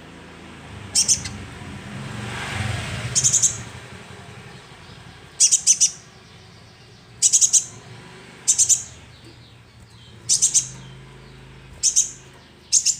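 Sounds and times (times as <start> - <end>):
sunbird high chirps: 0.9 - 1.5, 3.1 - 3.8, 4.4 - 12.9.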